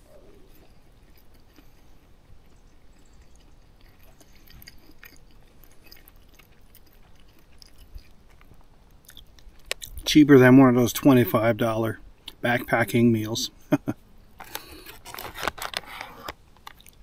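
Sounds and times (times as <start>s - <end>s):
person chewing food: 0.0s - 10.0s, 14.4s - 17.0s.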